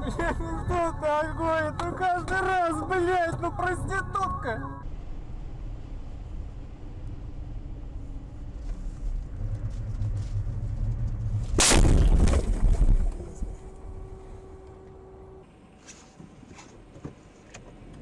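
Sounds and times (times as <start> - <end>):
car engine and road rumble: 0.0 - 18.0
vehicle collision crash: 11.4 - 13.4.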